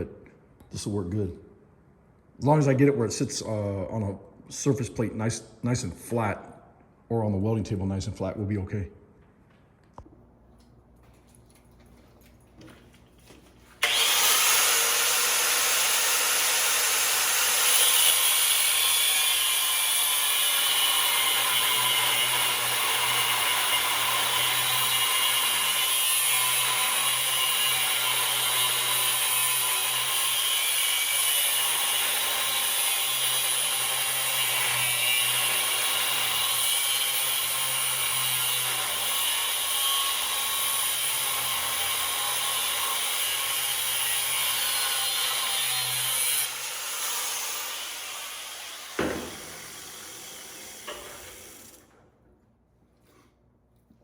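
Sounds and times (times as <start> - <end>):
angle grinder cutting metal: 13.8 - 52.0.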